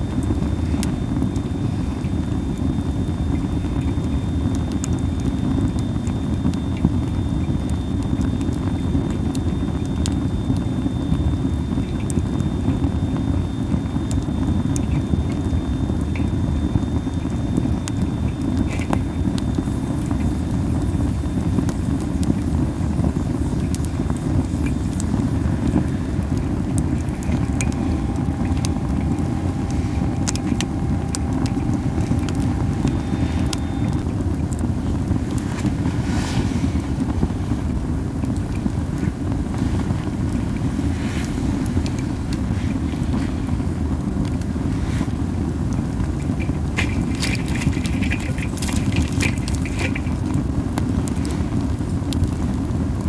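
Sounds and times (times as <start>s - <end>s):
campfire crackling and popping: 0.0s - 36.0s, 36.7s - 53.0s
thin whistle from wood: 7.4s - 34.1s.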